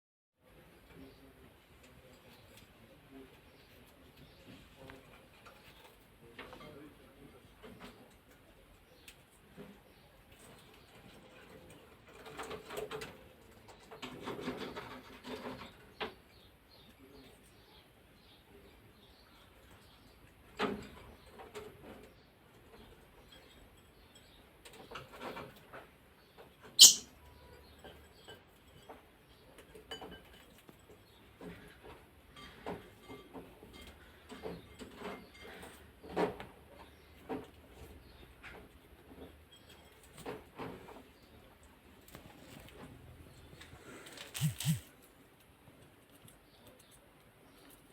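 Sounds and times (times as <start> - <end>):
parrotlet chirping: 26.8 - 27.1
parrotlets clicking and pecking: 43.5 - 47.9
scratchy rubbing and clicking: 44.2 - 44.9.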